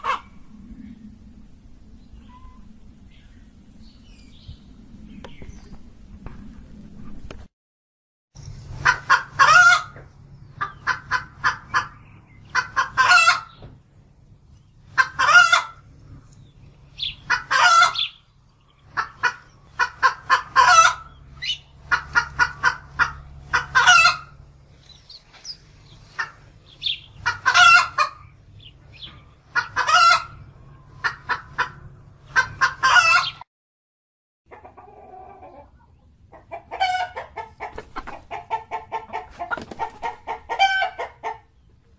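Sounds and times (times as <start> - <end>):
chicken clucking and squawking: 0.0 - 1.0, 8.7 - 13.7, 14.8 - 33.5, 34.5 - 41.9
quieter chicken call: 17.0 - 18.2, 26.2 - 33.4, 36.6 - 41.5.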